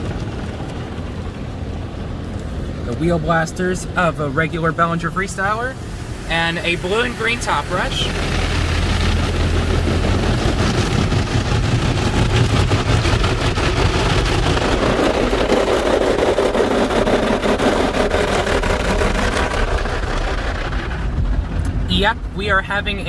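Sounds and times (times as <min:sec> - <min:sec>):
car wash machinery noise: 0:00.0 - 0:23.0
water spray: 0:04.8 - 0:13.3
loud buzzing brush drone: 0:05.1 - 0:19.9.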